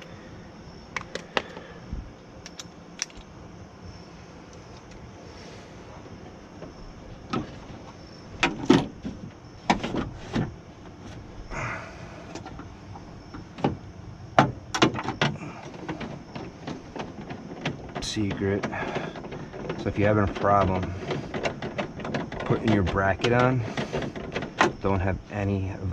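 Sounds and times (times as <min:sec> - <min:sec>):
metal clicks and knocks: 0:14.4 - 0:25.1.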